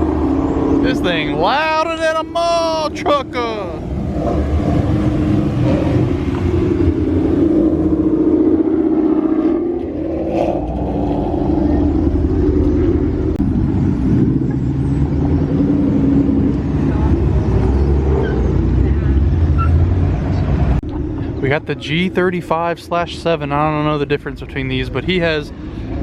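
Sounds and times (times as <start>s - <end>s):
car engine running: 0.0s - 26.0s.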